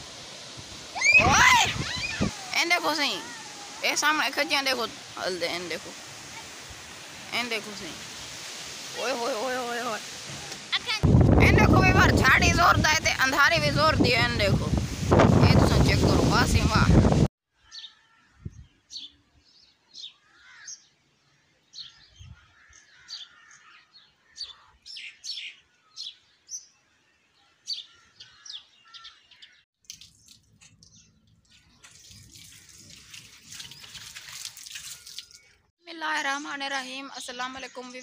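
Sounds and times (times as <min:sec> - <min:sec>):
faint steady hiss: 0:00.0 - 0:11.0
birds chirping: 0:01.0 - 0:08.3, 0:17.6 - 0:32.8, 0:33.4 - 0:38.0.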